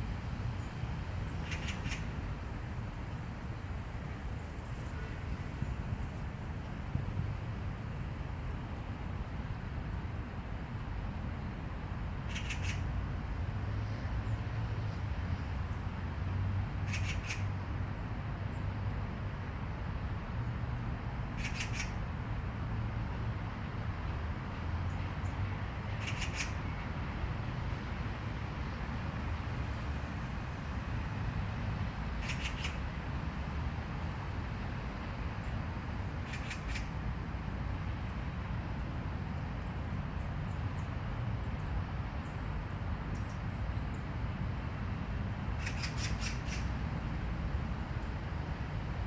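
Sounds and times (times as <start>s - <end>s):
low outdoor rumble: 37.3s - 49.0s.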